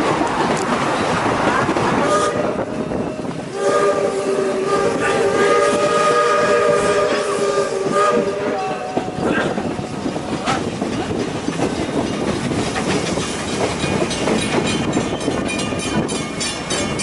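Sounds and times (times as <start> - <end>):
train running noise: 0.0 - 17.0
steam locomotive chime whistle: 2.1 - 9.2.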